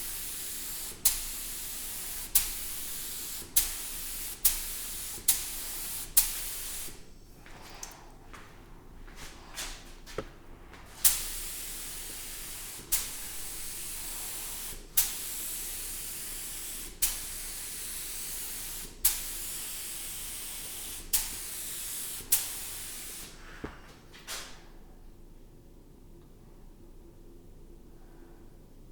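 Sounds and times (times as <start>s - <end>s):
spray hissing: 0.0s - 7.0s, 11.0s - 23.4s.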